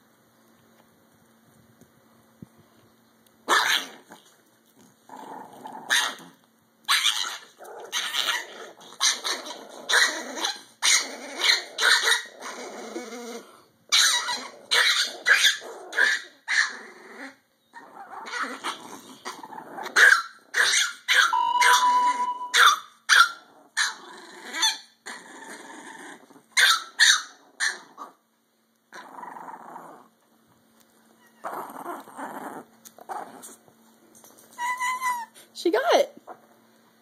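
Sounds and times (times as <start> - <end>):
dog growling: 5.0 - 6.4, 7.2 - 20.8, 23.4 - 26.6, 28.9 - 30.2, 31.3 - 33.6
dog barking sharply: 21.1 - 23.3.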